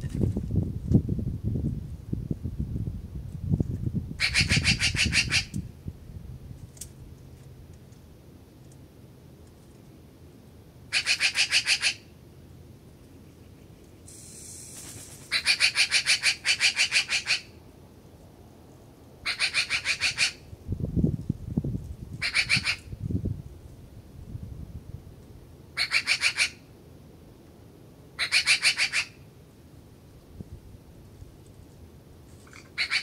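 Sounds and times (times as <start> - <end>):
bird harsh chattering calls: 4.2 - 5.6, 10.9 - 12.1, 13.6 - 17.6, 19.2 - 20.4, 22.2 - 23.0, 25.8 - 26.6, 28.2 - 29.2, 32.5 - 33.0.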